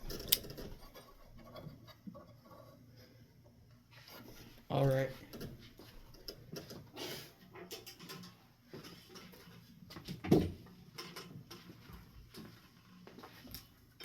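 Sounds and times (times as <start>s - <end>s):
hands handling hardware clicks: 0.0s - 0.9s.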